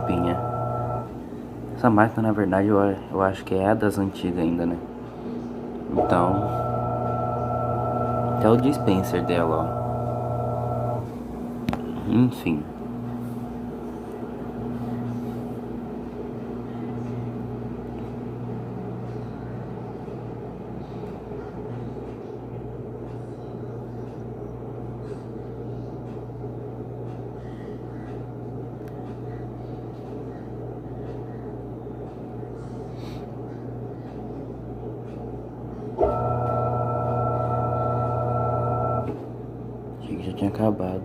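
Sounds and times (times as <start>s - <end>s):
higher hum: 0.0s - 1.7s, 6.0s - 18.6s
washing machine low motor hum: 0.0s - 41.0s.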